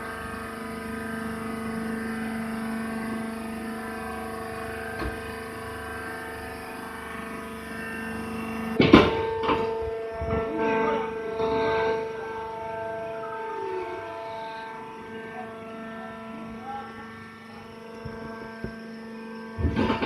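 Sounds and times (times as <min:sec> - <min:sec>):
hydraulic power unit humming: 0:00.0 - 0:20.0
loud metal clank: 0:08.8 - 0:10.5, 0:19.6 - 0:20.0.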